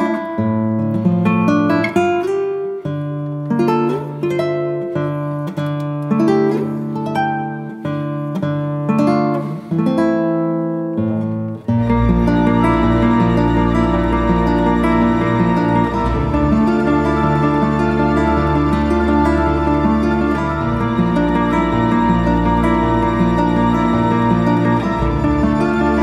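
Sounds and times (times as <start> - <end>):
acoustic guitar notes and chords: 0.0 - 26.0.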